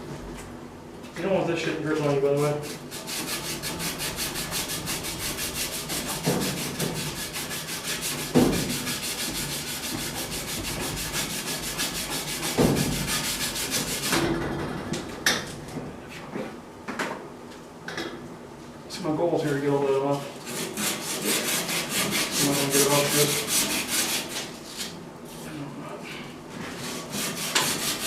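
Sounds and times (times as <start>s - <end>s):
rasping scrubbing on metal pipe: 2.7s - 14.1s, 19.9s - 25.0s, 26.8s - 28.0s.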